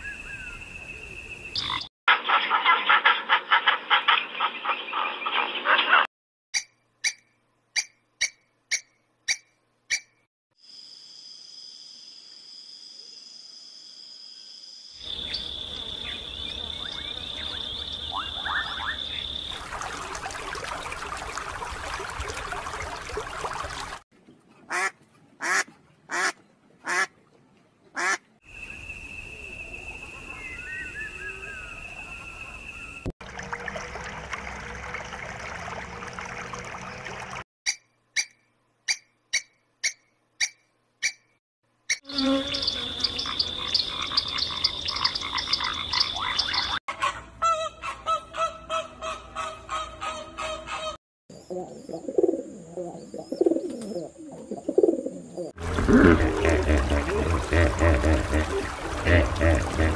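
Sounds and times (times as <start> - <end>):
duck quacking: 2.1 - 5.1, 24.7 - 27.1, 28.0 - 28.2, 55.7 - 59.9
small bird-like chirps: 15.0 - 19.5, 37.7 - 46.8.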